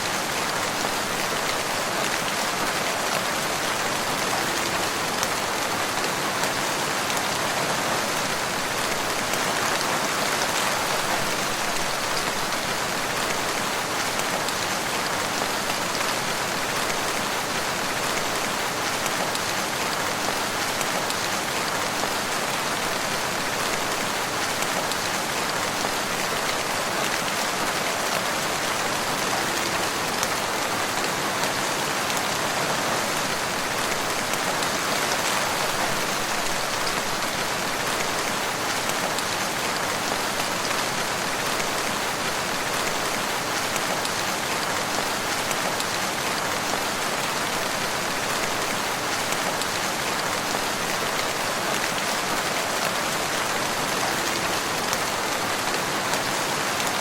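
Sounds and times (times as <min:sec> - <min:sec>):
rain on leaves: 0:00.0 - 0:57.0.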